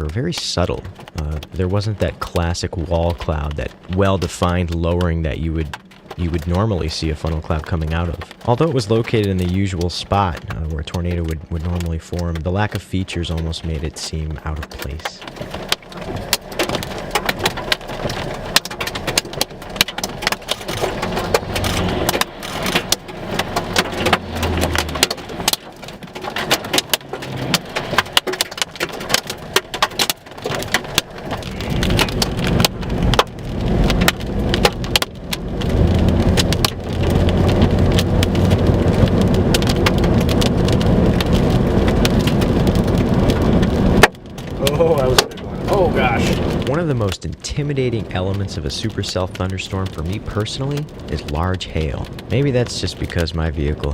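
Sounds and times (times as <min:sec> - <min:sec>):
rain and hail on vehicle roof: 0:00.0 - 0:53.9
low rumble: 0:12.8 - 0:53.9.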